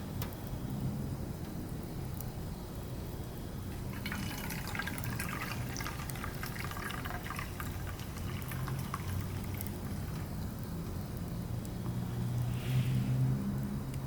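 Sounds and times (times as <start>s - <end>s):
wood fire crackling and popping: 0.0s - 12.6s
low rumble of burning: 0.0s - 14.0s.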